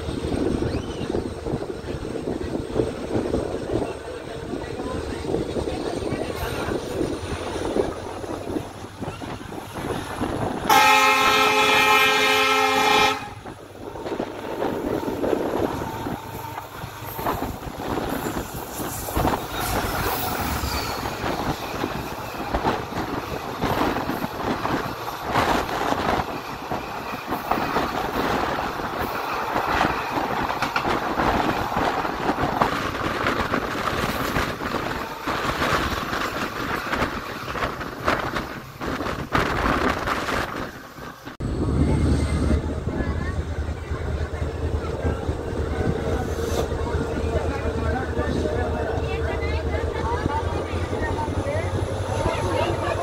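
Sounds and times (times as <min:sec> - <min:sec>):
passenger train rumbling past: 0:00.0 - 0:53.0
locomotive horn chord: 0:10.7 - 0:13.4.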